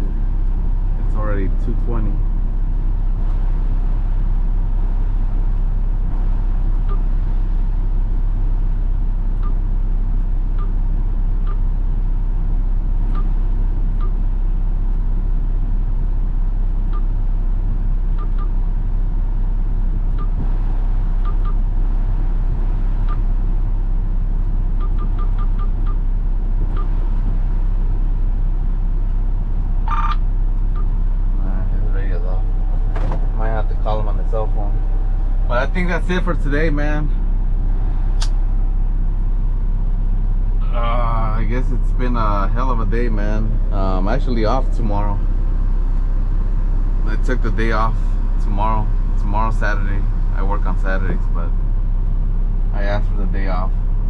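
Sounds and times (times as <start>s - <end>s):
truck engine drone: 0.0s - 54.0s.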